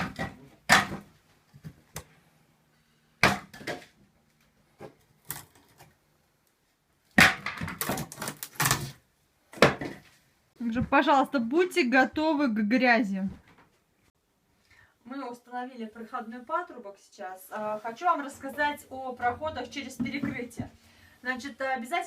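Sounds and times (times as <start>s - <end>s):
sharp knocks and cracking: 0.0s - 2.1s, 3.2s - 4.0s, 7.1s - 10.0s.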